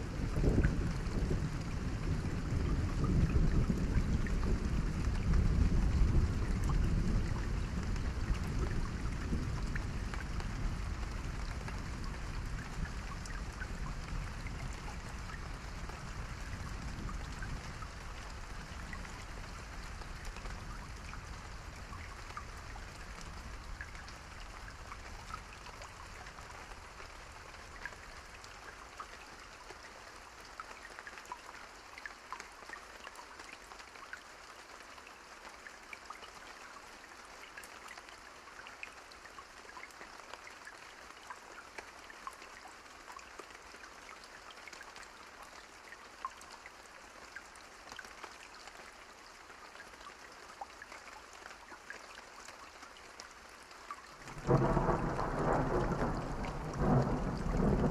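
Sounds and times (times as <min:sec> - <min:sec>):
low rumble of thunder: 0:00.0 - 0:26.9, 0:54.2 - 0:57.9
rain drops ticking: 0:00.0 - 0:57.9.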